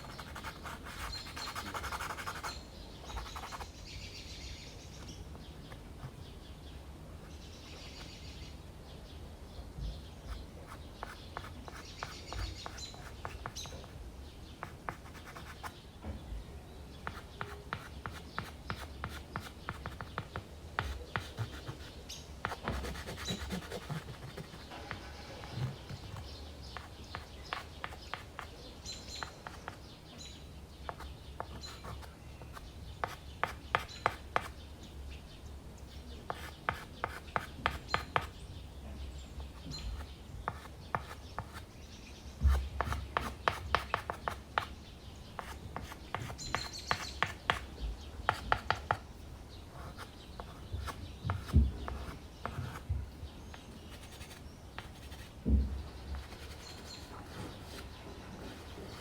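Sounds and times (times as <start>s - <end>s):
pastel scratching on canvas: 0.0s - 3.7s, 17.0s - 28.5s, 53.7s - 55.5s, 56.1s - 59.0s.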